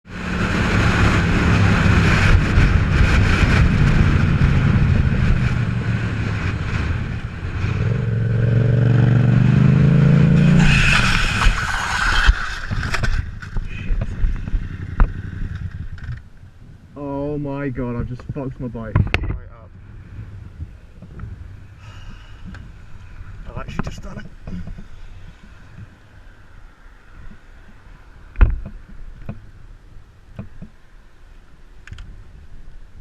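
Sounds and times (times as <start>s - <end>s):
rushing noise: 0.1s - 16.2s
metal scraping on road: 10.0s - 16.3s
motorcycle engine running: 13.2s - 16.2s.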